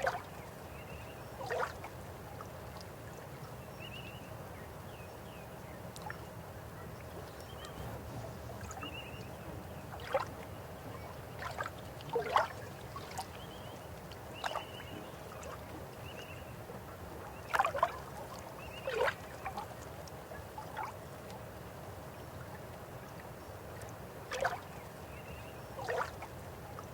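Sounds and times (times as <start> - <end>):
river water flowing: 5.6 - 26.9.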